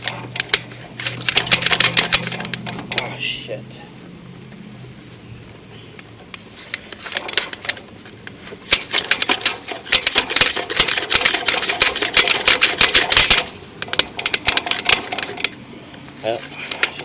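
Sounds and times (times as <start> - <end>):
camera push cable clicking and rattling: 0.0 - 3.1, 6.2 - 15.6.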